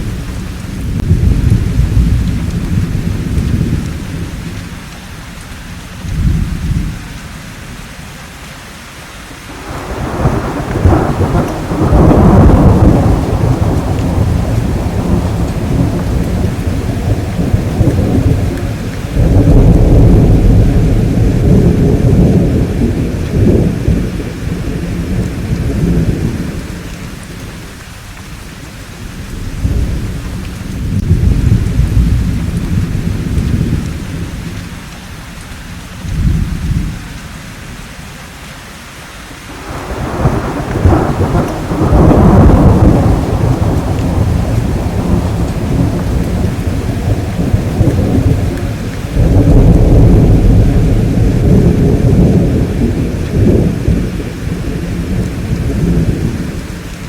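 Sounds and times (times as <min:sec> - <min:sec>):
low rolling thunder: 0:00.0 - 0:05.0, 0:05.9 - 0:07.8, 0:09.5 - 0:35.0, 0:35.7 - 0:37.9, 0:39.4 - 0:57.0
steady rainfall: 0:00.0 - 0:57.0.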